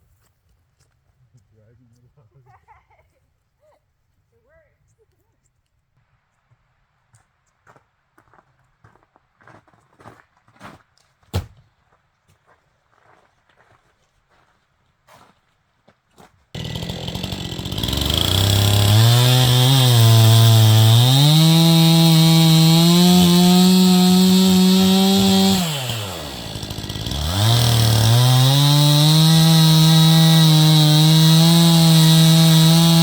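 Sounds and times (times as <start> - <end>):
chainsaw revving cutting wood: 16.6 - 33.0.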